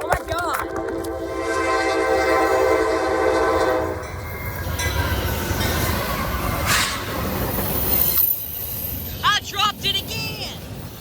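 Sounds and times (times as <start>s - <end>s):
train horn: 0.6s - 4.1s
train rumbling past: 0.6s - 11.0s.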